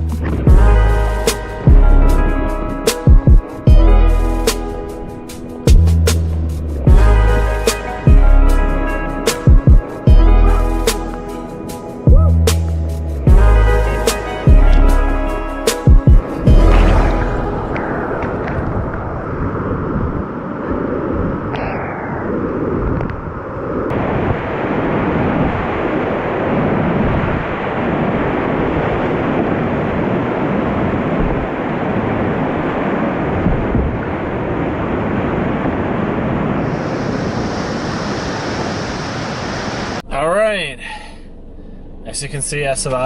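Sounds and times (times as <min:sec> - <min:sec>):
rushing river whitewater: 0:16.2 - 0:19.8, 0:23.9 - 0:40.0.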